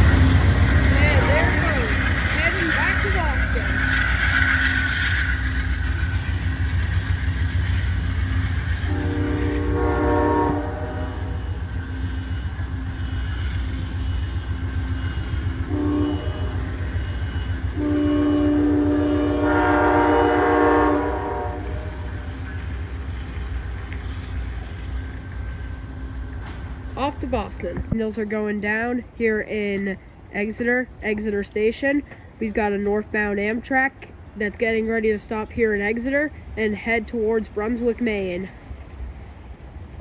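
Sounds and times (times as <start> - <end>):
train engine rumble: 0.0 - 40.0
train horn blasts: 8.7 - 11.7, 15.2 - 22.3.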